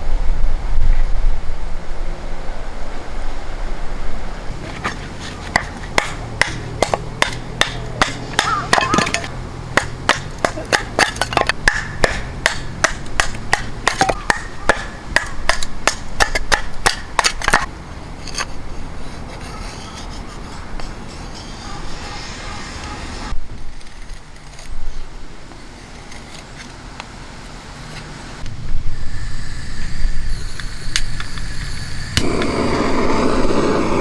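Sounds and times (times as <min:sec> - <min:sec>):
steady low hum: 0:00.0 - 0:34.0
sharp knocks: 0:05.5 - 0:17.7.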